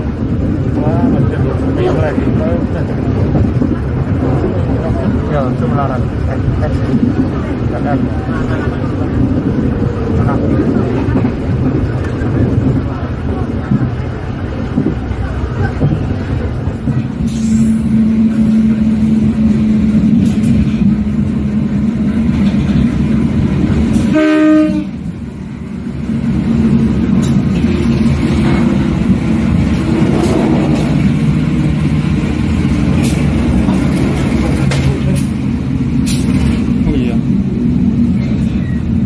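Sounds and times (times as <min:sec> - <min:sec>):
train rumbling along track: 0:00.0 - 0:39.0
train horn blast: 0:24.0 - 0:25.1.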